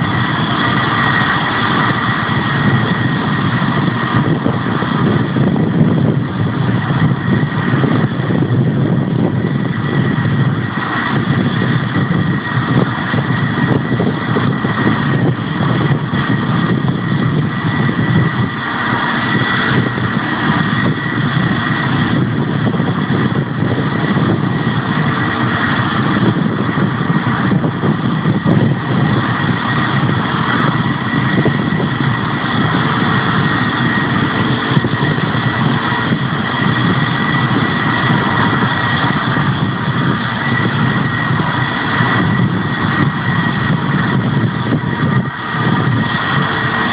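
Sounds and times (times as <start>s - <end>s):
jet engines whining: 0.0s - 46.9s.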